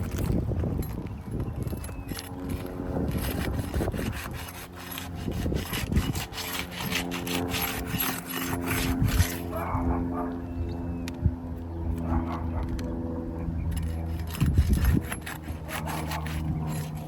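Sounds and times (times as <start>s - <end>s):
hand tool scraping under shingles: 0.0s - 10.1s, 13.6s - 17.0s.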